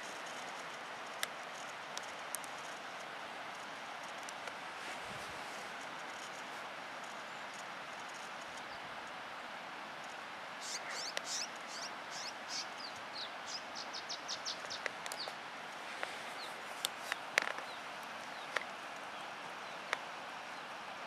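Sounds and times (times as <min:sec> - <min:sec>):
steady hiss: 0:00.0 - 0:21.0
songbird chirping: 0:10.0 - 0:20.8.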